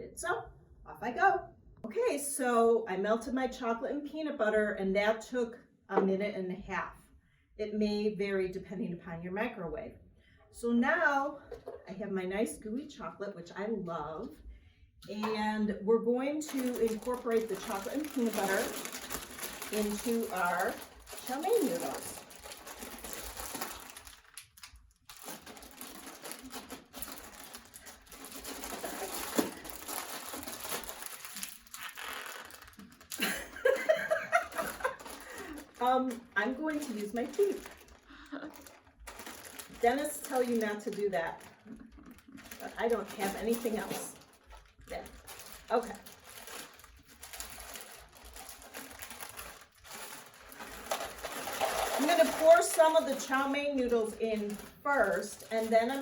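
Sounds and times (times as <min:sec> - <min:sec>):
plastic package crinkling: 0:16.4 - 0:56.0.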